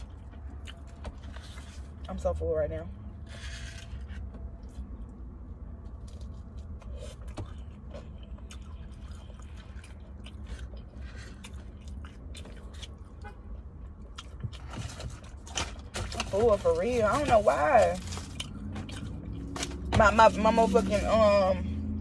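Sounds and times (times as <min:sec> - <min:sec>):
person chewing: 0:00.0 - 0:02.0, 0:06.0 - 0:15.6, 0:18.0 - 0:19.6.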